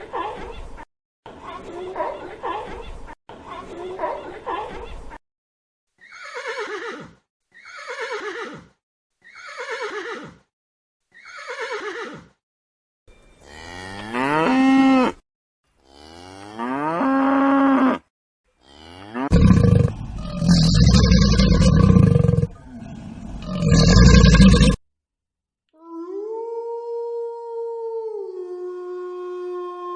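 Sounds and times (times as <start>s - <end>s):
cow mooing: 13.4s - 15.2s, 15.8s - 18.0s, 18.6s - 22.5s.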